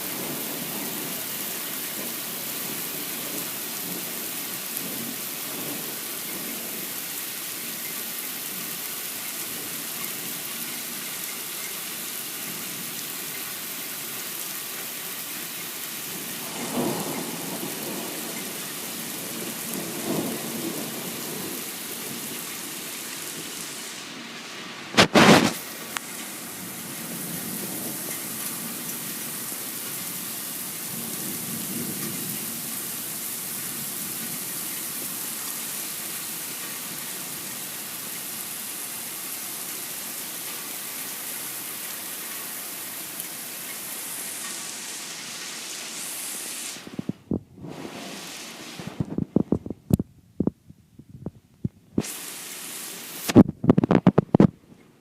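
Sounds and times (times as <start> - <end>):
heavy rain: 0.0 - 55.0
loud thunder crack: 16.4 - 18.3
low thunder rumbles: 16.4 - 22.4, 46.8 - 52.0.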